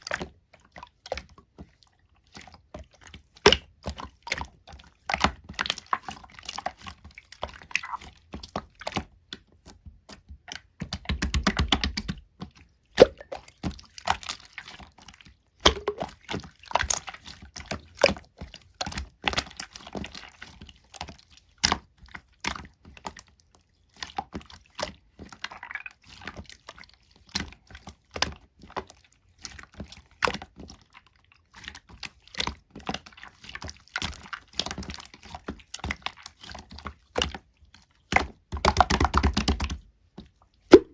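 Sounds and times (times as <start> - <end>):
slime squished by hand: 2.5 - 23.2.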